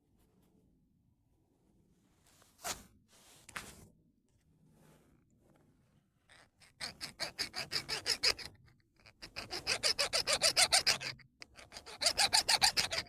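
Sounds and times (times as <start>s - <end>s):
file scraping on stone: 6.3s - 13.0s.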